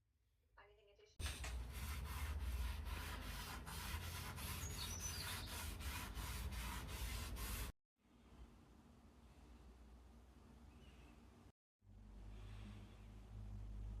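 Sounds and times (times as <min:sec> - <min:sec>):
rhythmic rubbing on wood: 0:01.4 - 0:07.7.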